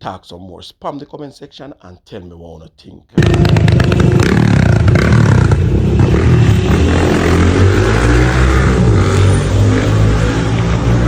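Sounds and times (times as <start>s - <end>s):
vehicle engine running: 3.2s - 7.8s
street noise: 3.2s - 11.0s.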